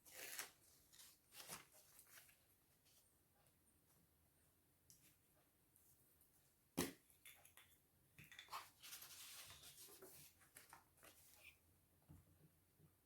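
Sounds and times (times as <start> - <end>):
faint paper rustling: 8.5 - 11.6.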